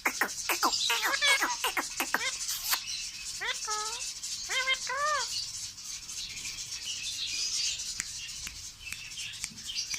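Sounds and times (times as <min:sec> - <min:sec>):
parrot calls: 0:00.0 - 0:05.4
soft high parrot chatter: 0:00.0 - 0:09.9.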